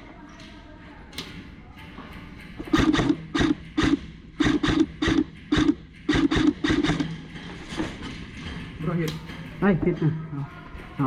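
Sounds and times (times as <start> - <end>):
airsoft gun firing bursts: 2.7 - 7.2.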